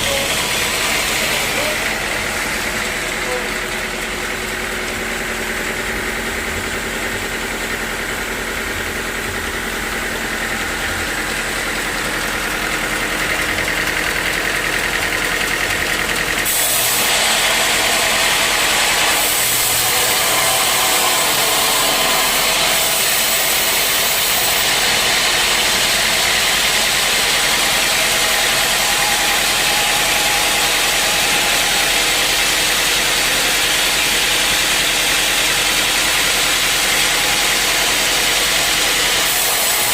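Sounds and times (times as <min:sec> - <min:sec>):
sawmill machinery running: 0:00.0 - 0:39.9
saw cutting log hiss: 0:16.4 - 0:39.9.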